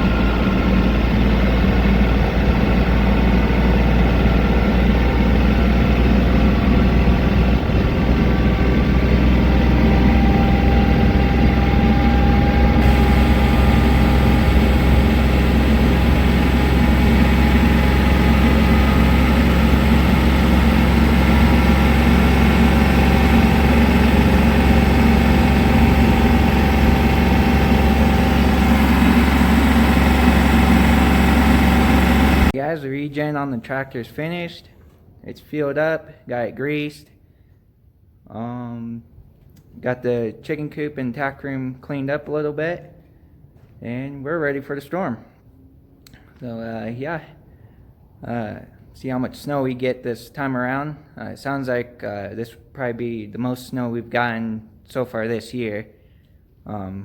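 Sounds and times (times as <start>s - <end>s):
diesel tractor engine running: 0.0s - 32.6s.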